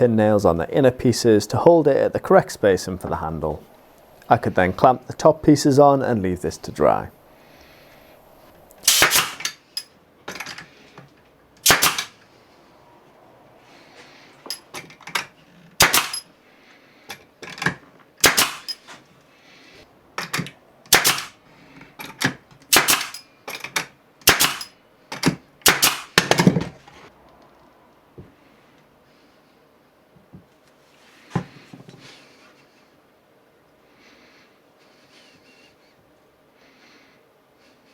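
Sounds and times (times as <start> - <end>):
pneumatic nailer firing: 8.8 - 9.6, 11.6 - 12.2, 15.8 - 16.3, 18.2 - 19.0, 20.2 - 21.4, 22.2 - 23.2, 24.2 - 26.6.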